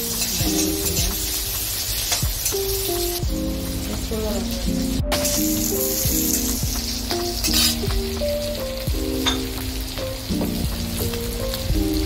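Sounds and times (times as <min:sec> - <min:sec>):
background music: 0:00.0 - 0:12.0
food sizzling in hot oil: 0:00.0 - 0:12.0.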